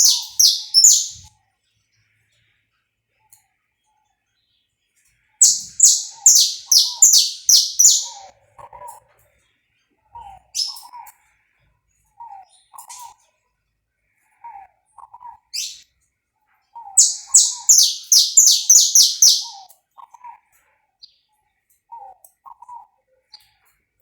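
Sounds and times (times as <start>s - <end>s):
finch singing high sweeping notes: 0.0s - 1.3s, 5.4s - 8.2s, 17.0s - 19.6s
soft low bird chirps: 0.0s - 1.3s, 5.4s - 8.3s, 10.6s - 11.0s, 15.0s - 15.8s, 16.8s - 19.7s.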